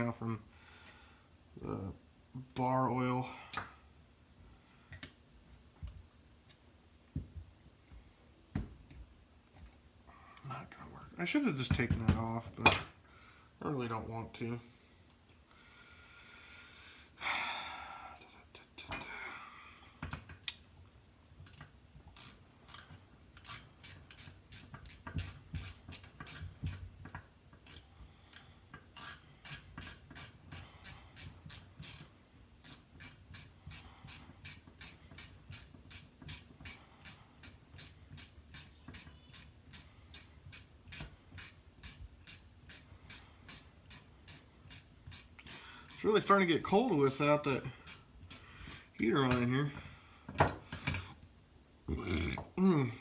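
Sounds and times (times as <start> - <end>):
hand tool clicking: 21.5 - 26.8, 27.6 - 48.9.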